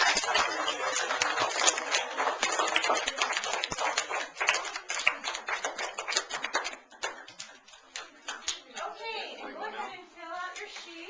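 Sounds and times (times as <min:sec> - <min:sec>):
children applauding: 0:00.0 - 0:08.6.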